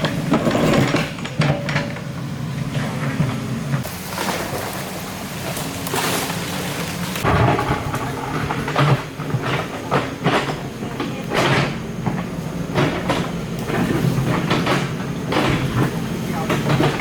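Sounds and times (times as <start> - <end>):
excavator diesel engine running: 0.0 - 17.0
metal scraping on rock and soil: 3.7 - 17.0.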